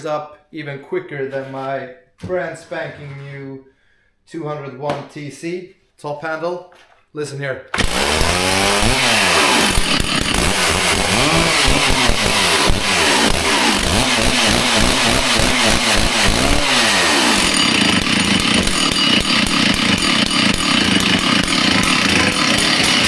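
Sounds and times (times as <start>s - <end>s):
chainsaw engine revving: 7.8s - 23.0s.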